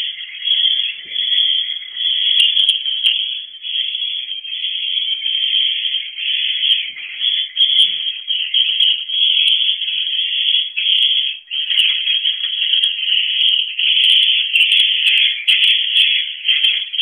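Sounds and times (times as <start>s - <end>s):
swiftlets twittering: 0.0s - 17.0s.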